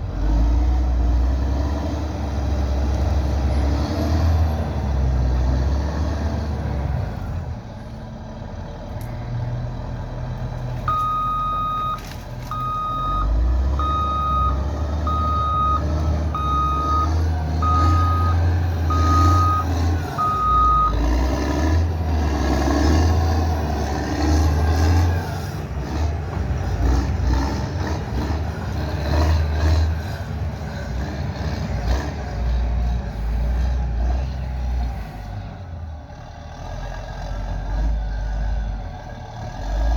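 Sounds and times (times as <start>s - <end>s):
diesel engine rumbling: 0.0s - 39.9s
reversing alarm beeps: 10.9s - 21.0s.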